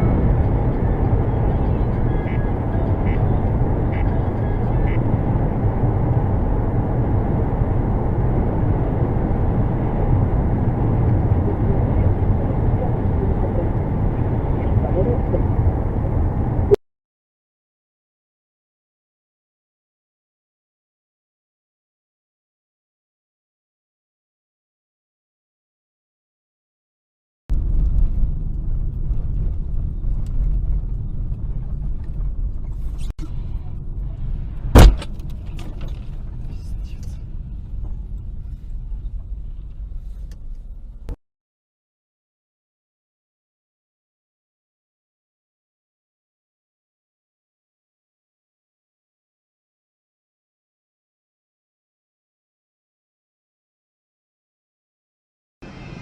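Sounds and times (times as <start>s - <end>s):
car road and engine rumble: 0.0s - 16.8s, 27.5s - 41.2s, 55.6s - 56.0s.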